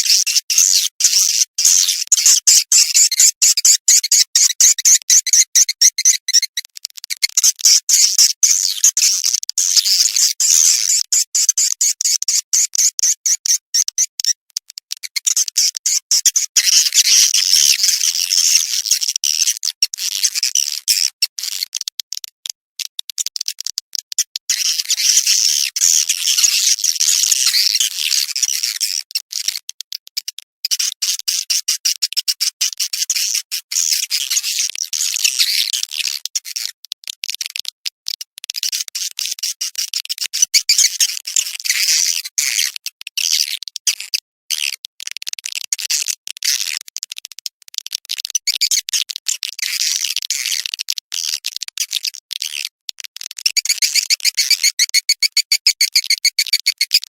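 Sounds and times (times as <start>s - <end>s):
swiftlets twittering: 53.5s - 57.0s.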